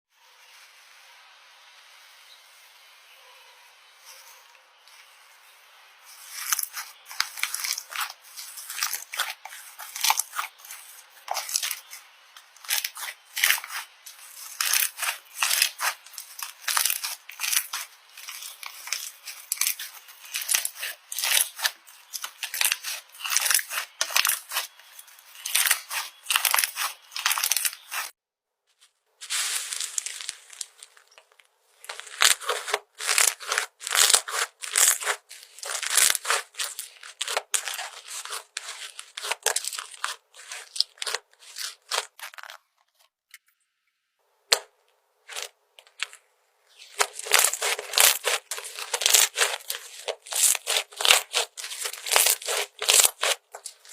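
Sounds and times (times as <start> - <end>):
slime squelching by hand: 6.0 - 28.1, 29.2 - 42.7, 45.3 - 53.9.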